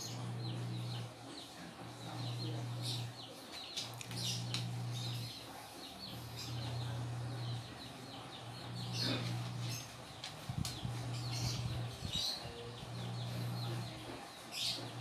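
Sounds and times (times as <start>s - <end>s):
intermittent low hum: 0.0s - 15.0s
small birds chirping: 0.0s - 15.0s.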